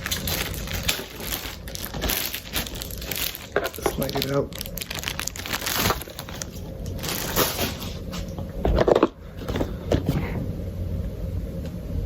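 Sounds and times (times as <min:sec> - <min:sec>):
cardboard box scraping and rustling: 0:07.0 - 0:08.2.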